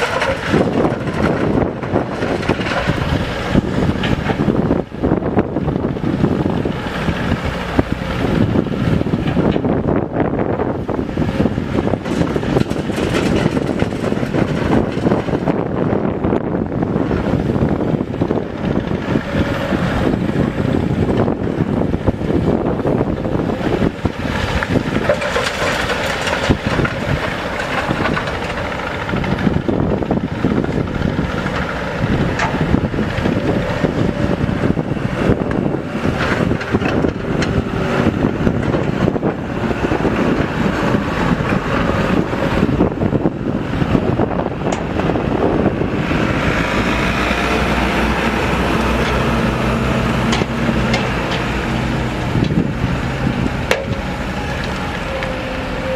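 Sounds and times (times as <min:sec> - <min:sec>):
heavy diesel engine running: 0:00.0 - 0:55.9.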